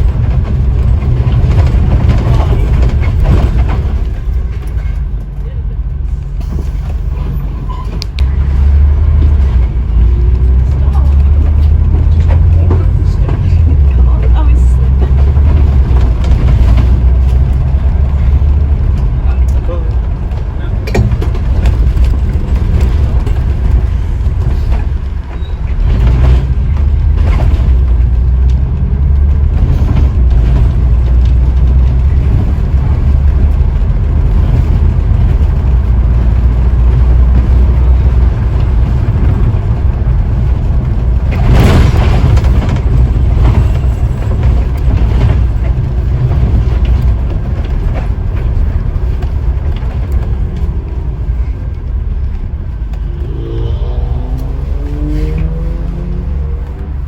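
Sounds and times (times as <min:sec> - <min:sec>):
bus diesel engine rumbling: 0:00.0 - 0:57.0.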